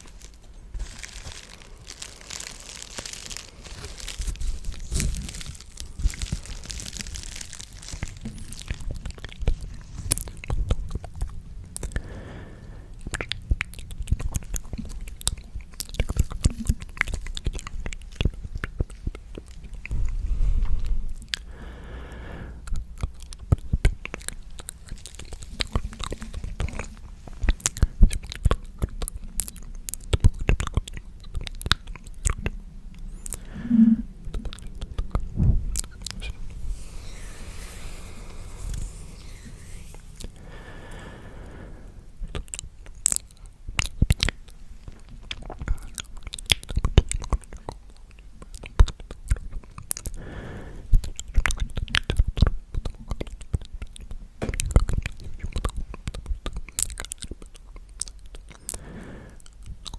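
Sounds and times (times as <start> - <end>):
breathy sounds: 0.0 - 13.3, 19.9 - 22.8, 32.8 - 42.6, 50.0 - 51.0, 58.5 - 59.9
wet mouth clicks and smacks: 42.3 - 50.2.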